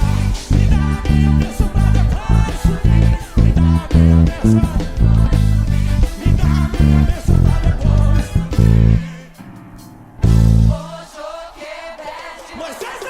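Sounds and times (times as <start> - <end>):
electric bass punchy low notes: 0.0 - 9.1, 10.2 - 10.8
live worship band music: 0.0 - 13.0.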